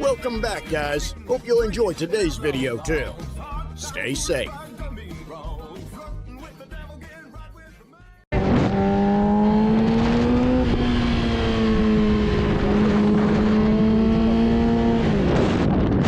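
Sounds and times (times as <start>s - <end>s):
heavy wind noise: 14.9s - 16.0s.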